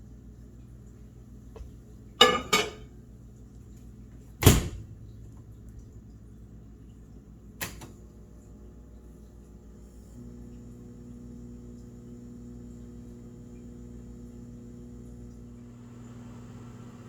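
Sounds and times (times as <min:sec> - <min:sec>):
low steady hum: 0:00.0 - 0:12.3
microwave clunk: 0:01.6 - 0:02.9, 0:04.4 - 0:05.5
microwave mechanical clicks: 0:07.5 - 0:08.1.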